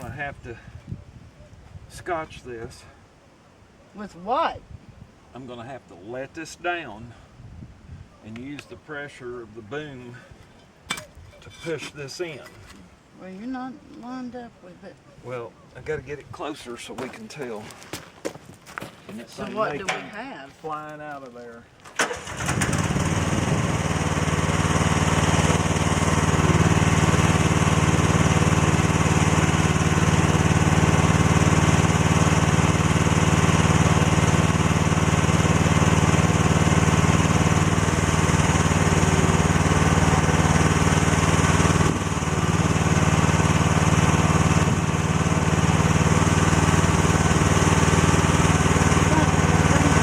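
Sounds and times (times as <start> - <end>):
excavator engine running: 22.2 - 50.0.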